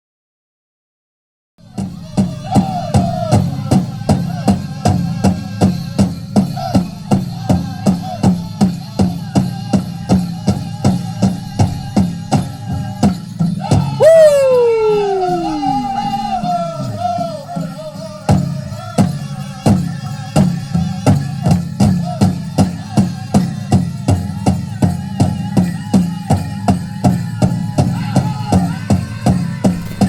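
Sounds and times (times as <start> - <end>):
powwow drum beating: 1.6 - 30.0
held wavering voice: 13.6 - 18.3
high-pitched singer calling: 13.7 - 18.0.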